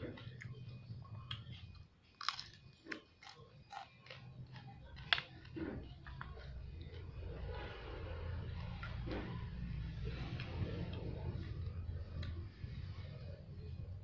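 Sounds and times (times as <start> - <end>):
person chewing with crunches: 0.1 - 8.0.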